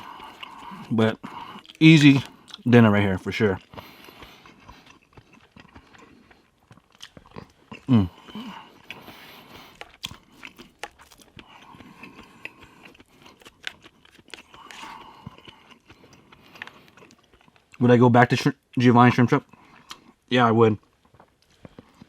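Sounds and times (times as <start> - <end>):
close chewing and smacking: 0.0 - 22.0
short vocal sound: 7.9 - 8.6.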